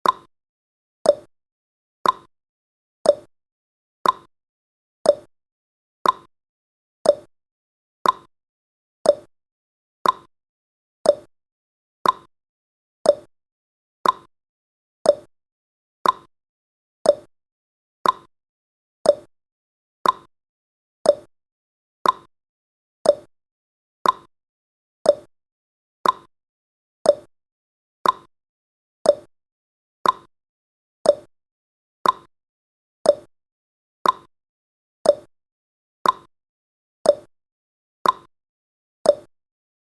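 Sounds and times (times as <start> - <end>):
timer ticking: 0.0 - 0.3, 1.0 - 1.3, 2.0 - 2.3, 3.0 - 3.3, 4.0 - 4.3, 5.1 - 5.3, 6.0 - 6.3, 7.0 - 7.3, 8.0 - 8.3, 9.0 - 9.3, 10.0 - 10.3, 11.0 - 11.3, 12.0 - 12.3, 13.0 - 13.3, 14.0 - 14.3, 15.0 - 15.3, 16.0 - 16.3, 17.0 - 17.3, 18.0 - 18.3, 19.0 - 19.3, 20.0 - 20.3, 21.0 - 21.3, 22.0 - 22.3, 23.0 - 23.3, 24.0 - 24.3, 25.0 - 25.3, 26.0 - 26.3, 27.0 - 27.3, 28.0 - 28.3, 29.0 - 29.3, 30.0 - 30.3, 31.0 - 31.3, 32.0 - 32.3, 33.0 - 33.3, 34.0 - 34.3, 35.0 - 35.3, 36.0 - 36.3, 37.1 - 37.3, 38.0 - 38.3, 39.1 - 39.3.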